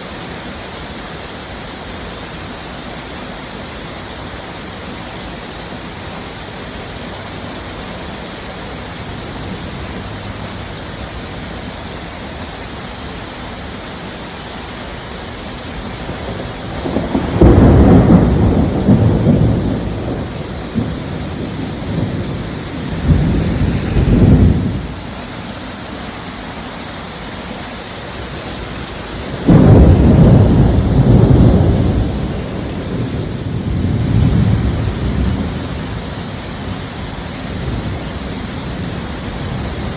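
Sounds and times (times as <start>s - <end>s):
heavy downpour: 0.0s - 39.9s
rolling thunder: 15.8s - 25.2s, 29.3s - 39.9s.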